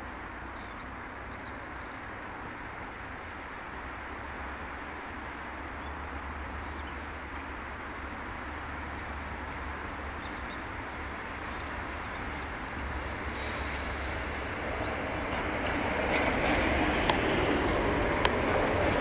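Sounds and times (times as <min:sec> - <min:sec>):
electric train passing: 0:07.0 - 0:19.0.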